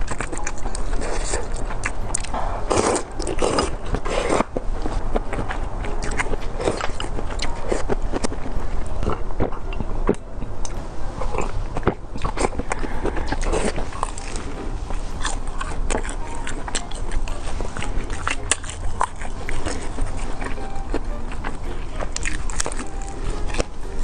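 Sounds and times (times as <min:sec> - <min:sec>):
crunchy pie chewing: 0:00.0 - 0:24.0.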